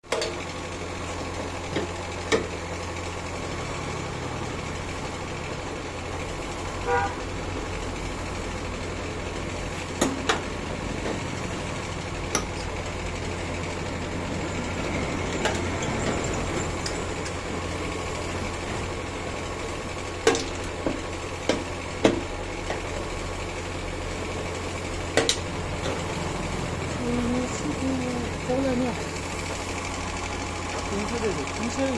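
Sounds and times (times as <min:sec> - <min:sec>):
sharp clicks and knocks: 0:00.1 - 0:00.4, 0:12.3 - 0:12.7, 0:25.2 - 0:26.0.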